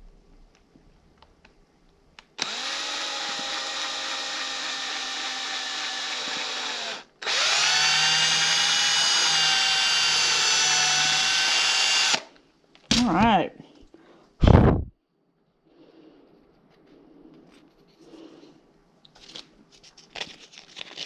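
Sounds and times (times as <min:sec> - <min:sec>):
electric drill boring into wood: 0:02.4 - 0:12.3.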